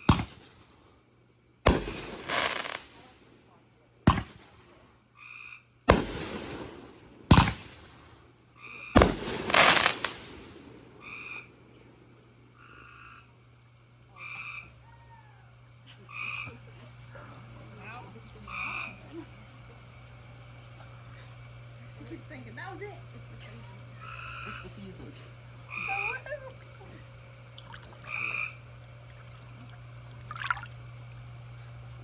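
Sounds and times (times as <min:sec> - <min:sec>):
frogs croaking: 0:00.0 - 0:00.3, 0:05.0 - 0:07.8, 0:08.5 - 0:32.0
fireworks bangs: 0:00.0 - 0:00.7, 0:01.7 - 0:03.0, 0:04.1 - 0:04.8, 0:05.9 - 0:08.2, 0:09.0 - 0:10.9.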